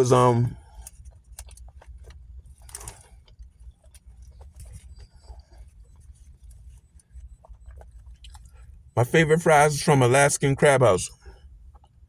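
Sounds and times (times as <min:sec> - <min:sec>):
mouth clicks and chewing: 0:00.7 - 0:06.6, 0:07.2 - 0:08.7.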